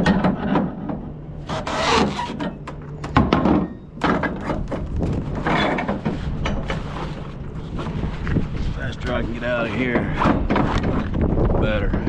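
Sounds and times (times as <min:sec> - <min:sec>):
thunks and knocks: 0:01.5 - 0:04.8.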